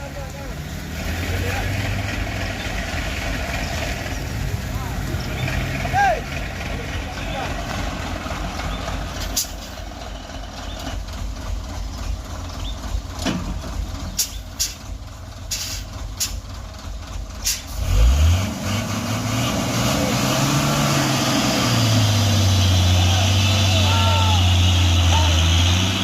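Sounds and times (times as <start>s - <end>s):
truck diesel engine: 0.0s - 26.0s
air brake hisses: 15.5s - 16.4s, 17.4s - 17.8s.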